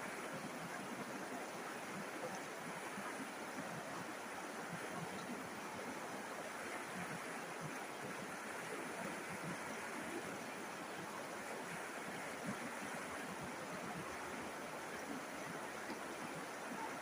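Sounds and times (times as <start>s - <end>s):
river water rushing and babbling: 0.0s - 17.0s.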